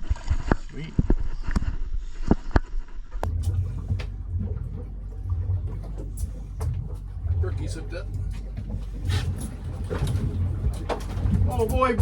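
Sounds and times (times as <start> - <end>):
boat motor humming: 3.2 - 12.0.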